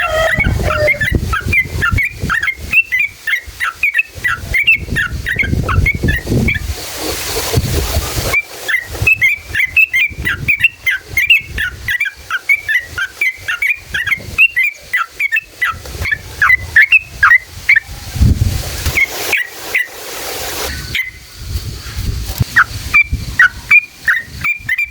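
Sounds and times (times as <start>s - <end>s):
bird singing bubbly notes: 0.0s - 6.6s, 8.4s - 17.8s.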